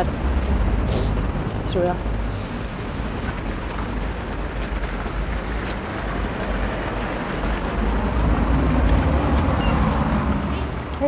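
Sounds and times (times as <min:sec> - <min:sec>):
road traffic rumble: 0:00.0 - 0:11.0
vehicle passing close: 0:05.1 - 0:11.0.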